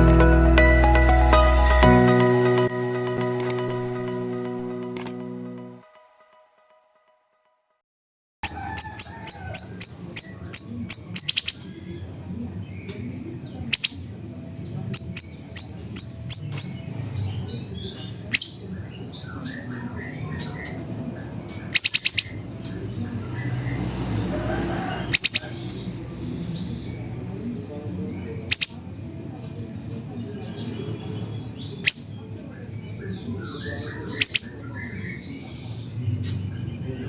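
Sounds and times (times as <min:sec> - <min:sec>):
bird calling with sharp high notes: 0:08.4 - 0:11.7, 0:13.7 - 0:14.0, 0:15.0 - 0:16.8, 0:18.3 - 0:18.6, 0:21.5 - 0:22.4, 0:25.1 - 0:25.6, 0:28.4 - 0:30.3, 0:31.7 - 0:32.2, 0:33.6 - 0:35.5.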